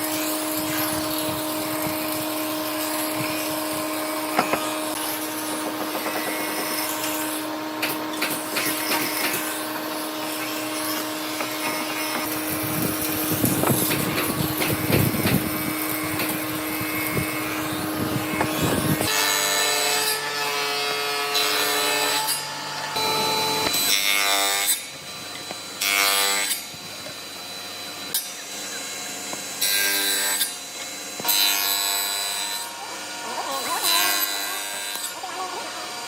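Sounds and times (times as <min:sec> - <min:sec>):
sawing strokes with ringing edge: 0:00.0 - 0:35.3
noisy woodworking tool: 0:00.0 - 0:36.0.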